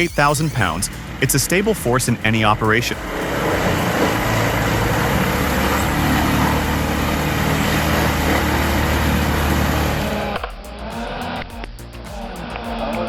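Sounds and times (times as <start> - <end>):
diesel engine droning: 0.7 - 10.4
wood chipper grinding: 3.1 - 10.4.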